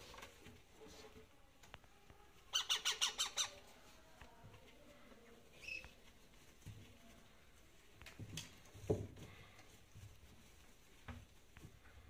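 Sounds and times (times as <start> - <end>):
parrot squawking: 2.5 - 3.6.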